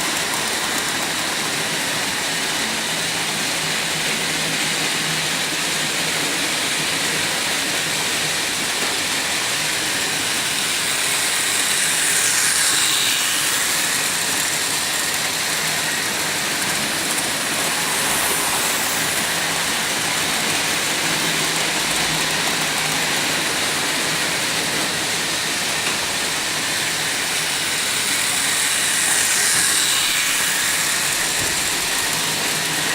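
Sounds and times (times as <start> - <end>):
model train whirring and rattling: 0.0 - 32.9.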